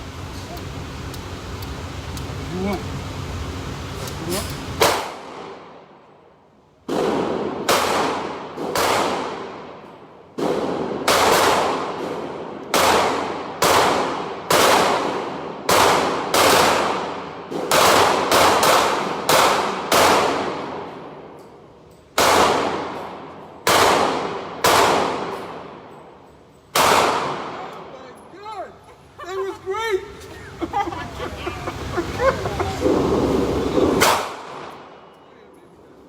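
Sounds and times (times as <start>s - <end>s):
gunshots echoing: 6.9s - 21.2s, 22.2s - 25.9s, 26.7s - 27.9s, 32.8s - 35.0s.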